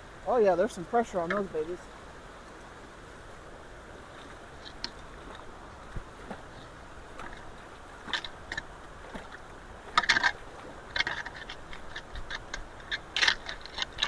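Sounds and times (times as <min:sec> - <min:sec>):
floodwater rushing: 0:00.0 - 0:14.0
debris sloshing and crackling: 0:04.1 - 0:14.0.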